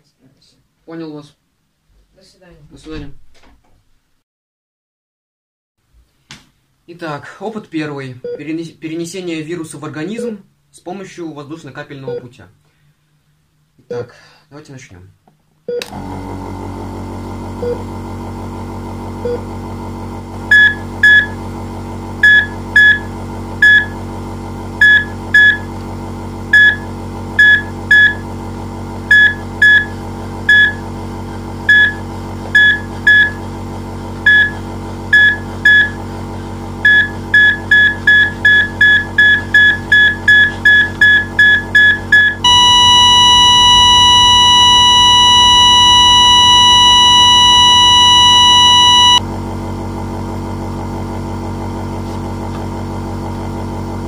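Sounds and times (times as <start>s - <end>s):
patient monitor beeping: 20.5s - 21.4s, 22.2s - 24.0s, 24.8s - 25.6s, 26.6s - 26.8s, 27.4s - 28.2s, 29.1s - 29.9s, 30.5s - 30.8s, 31.7s - 32.0s, 32.6s - 33.4s, 34.3s - 34.6s, 35.2s - 36.0s, 36.9s - 49.2s
steady low hum: 34.3s - 49.2s
continuous flatline tone: 36.9s - 49.2s.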